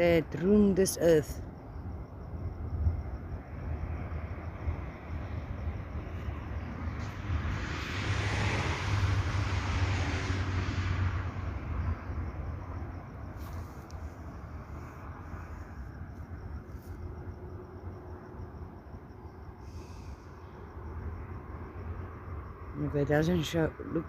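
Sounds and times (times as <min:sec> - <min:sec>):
steady low rumble: 0:00.0 - 0:24.0
vehicle passing by: 0:04.0 - 0:17.1.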